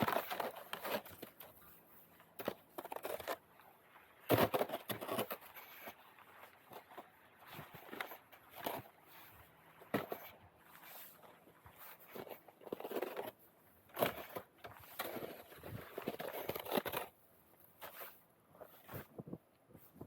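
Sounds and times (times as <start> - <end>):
roof rake scraping snow: 0.0 - 3.4, 4.2 - 19.0.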